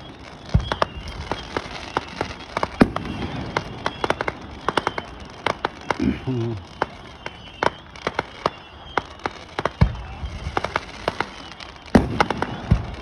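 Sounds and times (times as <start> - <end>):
deep firework boom: 0.0 - 8.6, 12.0 - 13.0
fireworks popping and cracking: 0.0 - 13.0.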